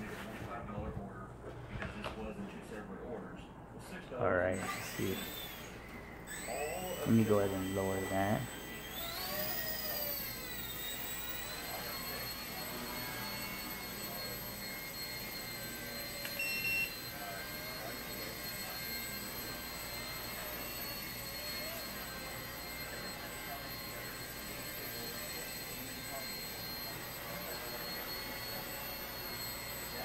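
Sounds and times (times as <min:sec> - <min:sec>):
rc helicopter motor whine: 0:04.5 - 0:30.0
short electronic beep: 0:16.3 - 0:17.0.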